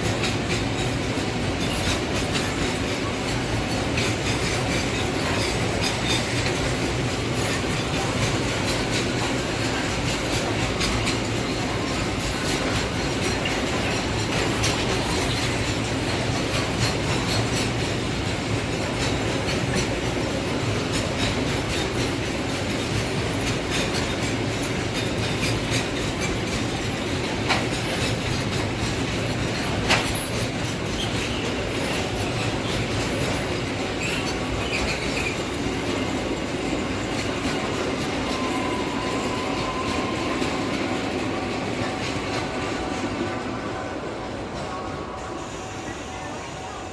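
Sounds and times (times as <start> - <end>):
train wheels clacking over rail joints: 0.0 - 45.6
faint wheel squeal: 38.1 - 41.0, 44.6 - 46.9.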